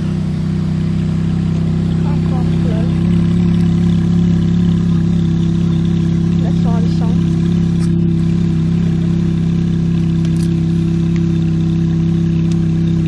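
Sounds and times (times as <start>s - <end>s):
car engine running steadily: 0.0s - 13.0s.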